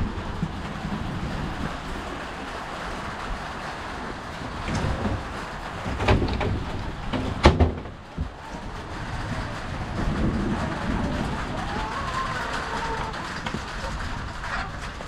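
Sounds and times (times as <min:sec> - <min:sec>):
steady rushing noise: 0:00.0 - 0:15.0
knocks: 0:04.6 - 0:15.0.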